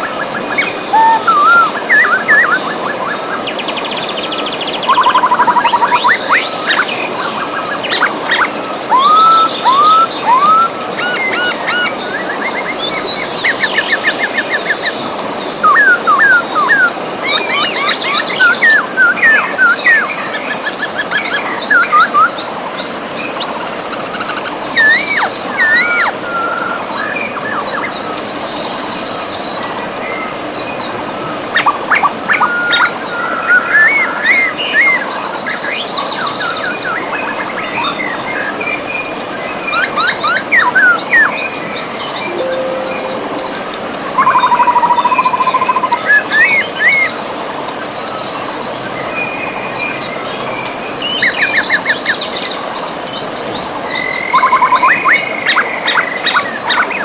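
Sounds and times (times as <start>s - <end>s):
birds singing and trilling: 0.0s - 43.2s.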